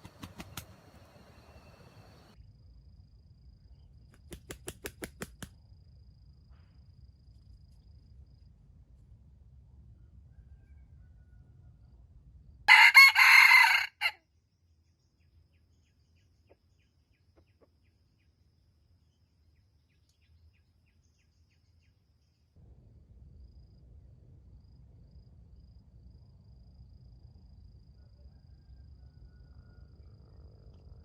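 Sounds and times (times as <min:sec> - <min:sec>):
rooster crowing: 0:00.0 - 0:02.4, 0:10.1 - 0:11.9, 0:12.7 - 0:14.2, 0:28.0 - 0:30.1.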